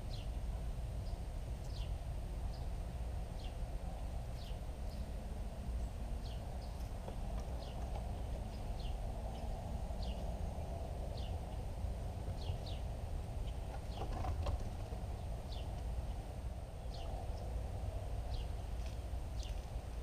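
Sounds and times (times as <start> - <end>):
bird chirping: 0.0 - 0.4, 1.0 - 2.7, 3.4 - 3.6, 4.3 - 17.6, 18.2 - 19.8
low outdoor rumble: 0.0 - 20.0.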